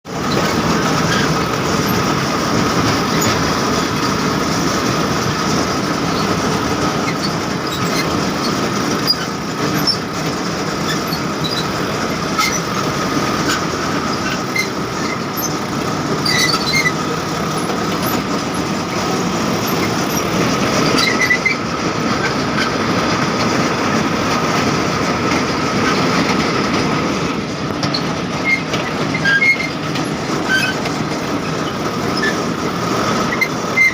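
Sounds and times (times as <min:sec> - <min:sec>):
tractor engine running under load: 0:00.1 - 0:33.9
metal clicks and squeaks: 0:04.9 - 0:10.1, 0:10.8 - 0:18.8, 0:19.5 - 0:21.6, 0:27.7 - 0:32.5, 0:33.2 - 0:33.9.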